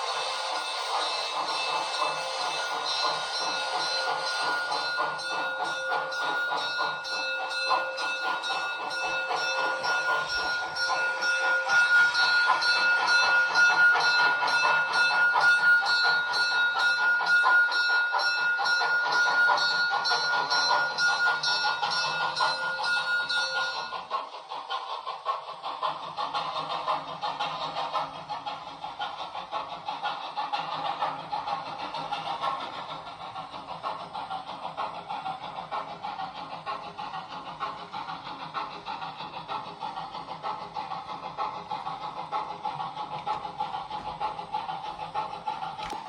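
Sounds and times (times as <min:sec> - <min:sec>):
steady ringing tones: 0:00.0 - 0:24.1
steam locomotive chuffing: 0:00.0 - 0:46.0.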